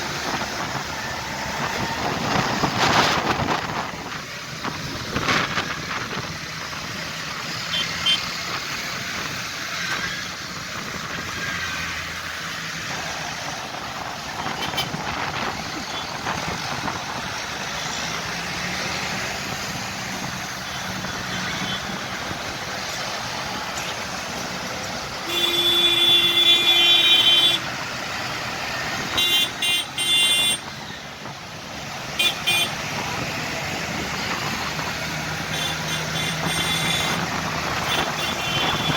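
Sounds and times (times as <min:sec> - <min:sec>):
tractor engines running: 0:00.0 - 0:38.9
vehicle horn: 0:14.6 - 0:15.0, 0:25.2 - 0:27.7, 0:29.1 - 0:30.7, 0:32.2 - 0:32.8, 0:35.5 - 0:37.2, 0:37.8 - 0:38.9.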